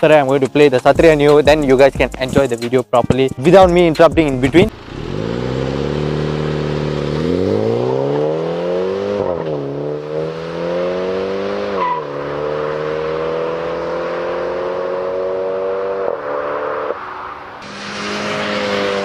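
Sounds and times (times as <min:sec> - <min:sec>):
car engine accelerating through gears: 0:04.7 - 0:17.0, 0:17.6 - 0:19.0.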